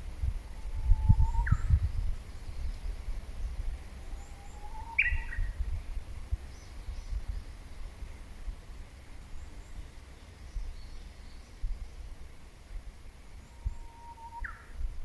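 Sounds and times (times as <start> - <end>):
birds whistling calls: 0.6 - 2.8, 4.0 - 5.6, 13.4 - 14.8
faint high bird chirps: 0.6 - 5.6, 13.4 - 14.8.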